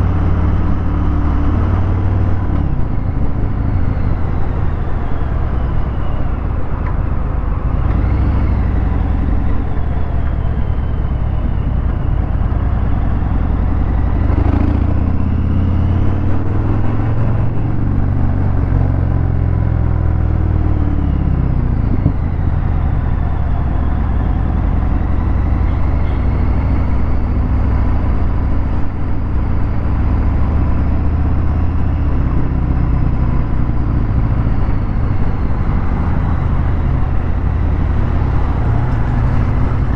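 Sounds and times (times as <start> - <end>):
motorcycle engine revving: 12.6 - 39.9.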